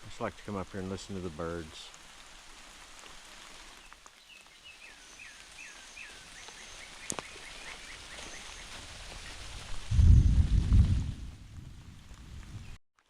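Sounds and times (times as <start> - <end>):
rain hiss: 0.0 - 12.8
songbird singing: 3.7 - 9.5.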